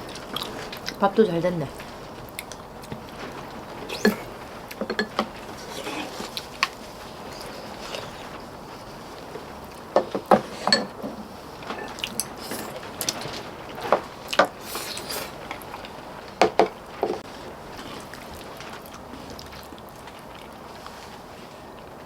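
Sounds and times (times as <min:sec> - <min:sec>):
utensils clinking against dishes: 0:03.9 - 0:06.5, 0:10.3 - 0:13.5.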